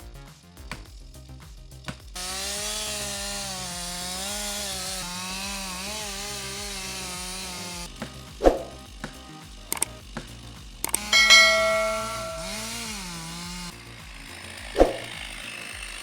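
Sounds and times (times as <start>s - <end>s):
chainsaw cutting wood: 1.9s - 16.0s
sharp knock: 11.2s - 12.7s.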